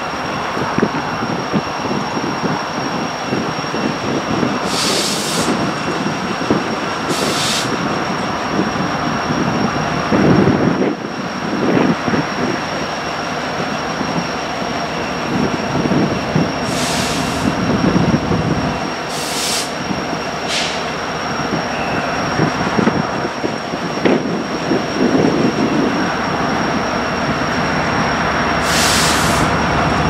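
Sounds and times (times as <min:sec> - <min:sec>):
diesel locomotive engine rumble: 0:00.0 - 0:30.0
short air hisses: 0:04.6 - 0:05.6, 0:07.1 - 0:07.8, 0:16.6 - 0:17.6, 0:19.1 - 0:19.8, 0:20.5 - 0:20.9, 0:28.6 - 0:29.5.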